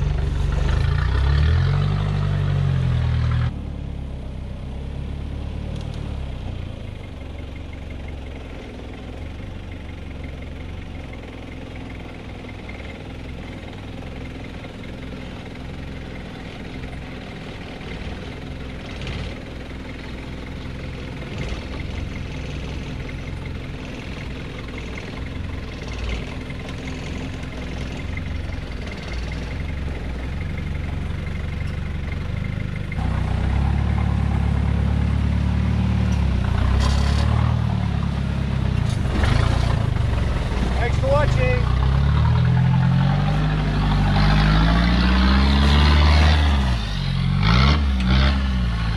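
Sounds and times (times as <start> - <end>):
diesel engine knocking at low revs: 6.6 - 35.2.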